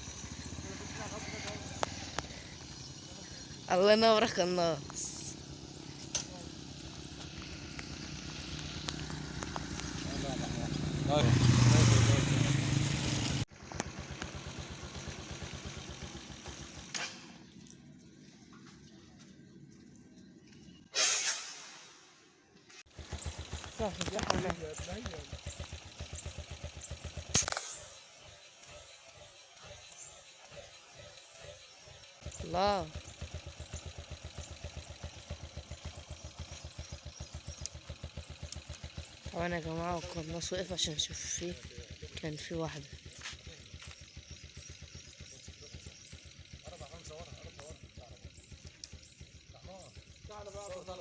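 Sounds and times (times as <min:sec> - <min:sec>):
small engine putter: 0:00.0 - 0:03.8, 0:04.8 - 0:11.8, 0:13.5 - 0:18.9, 0:22.8 - 0:51.0
single click: 0:27.4 - 0:27.9.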